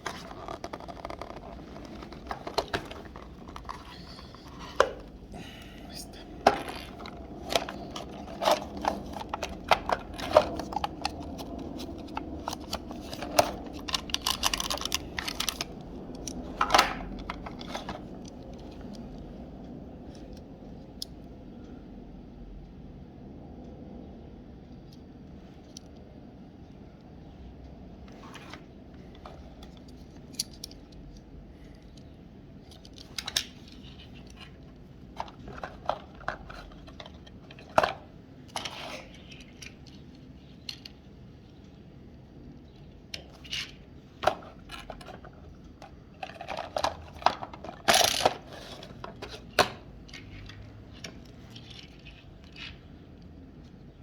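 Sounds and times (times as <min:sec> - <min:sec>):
toy cars clicking and rattling: 0:06.4 - 0:18.7, 0:43.2 - 0:52.9.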